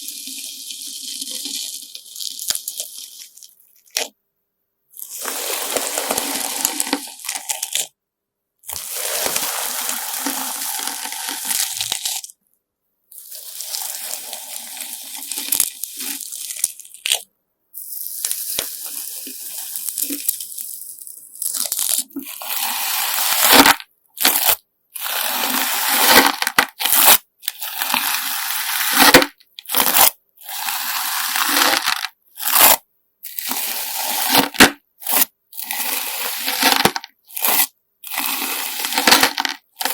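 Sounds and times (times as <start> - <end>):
slime crunching and crackling: 0.9 - 4.1, 5.0 - 7.9, 8.7 - 12.3, 13.2 - 39.9.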